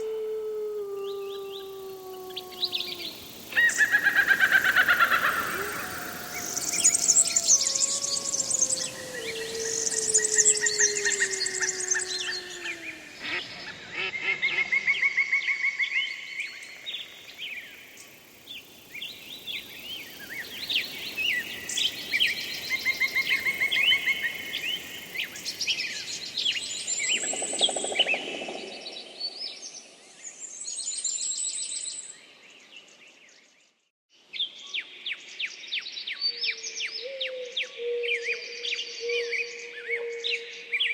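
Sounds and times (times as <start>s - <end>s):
songbirds singing: 1.0s - 14.9s.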